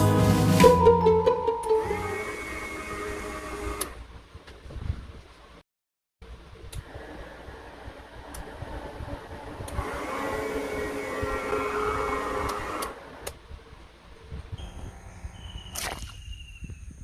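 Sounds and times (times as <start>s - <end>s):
small electric motors whining: 2.0s - 4.0s, 8.2s - 13.4s.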